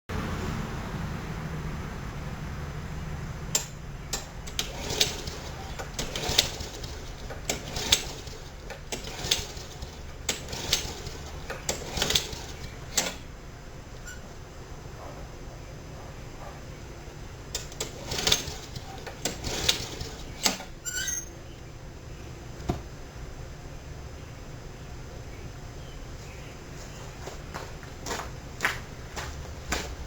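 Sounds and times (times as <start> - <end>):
low steady hum: 0.1 - 30.0
sharp clicks and knocks: 3.5 - 9.4.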